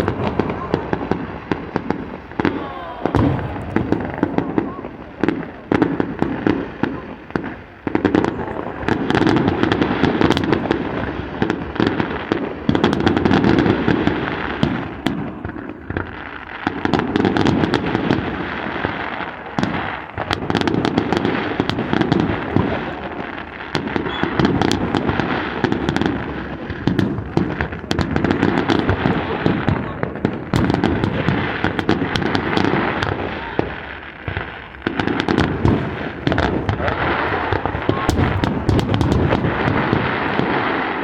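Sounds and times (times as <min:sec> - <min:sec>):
fireworks crackling and popping: 0:00.0 - 0:41.0
fireworks heavy booms: 0:00.0 - 0:41.0.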